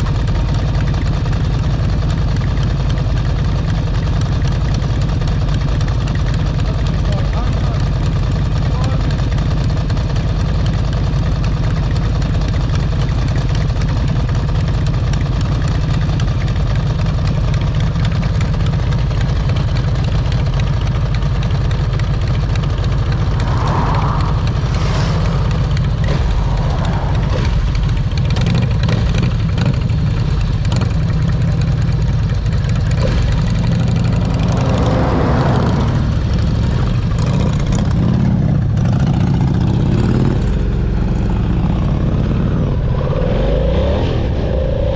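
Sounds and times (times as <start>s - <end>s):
motorcycle engine running: 0.0s - 43.5s
vehicles passing: 19.5s - 44.9s
wind rumble on microphone: 22.4s - 28.3s, 41.8s - 44.9s.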